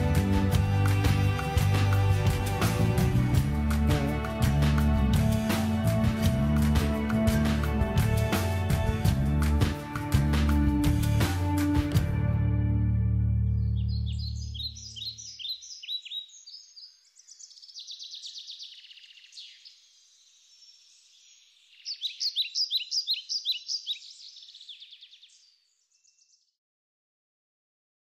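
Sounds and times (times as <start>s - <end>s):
low background music: 0.0s - 14.7s
songbirds singing: 13.4s - 26.6s.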